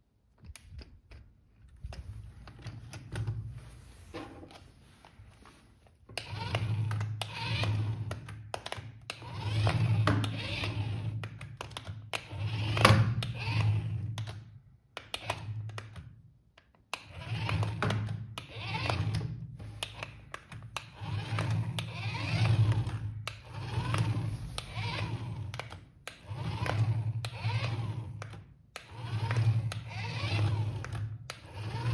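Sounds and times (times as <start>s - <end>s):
toy electric motors whirring: 6.2s - 11.2s, 12.2s - 14.0s, 17.0s - 31.9s.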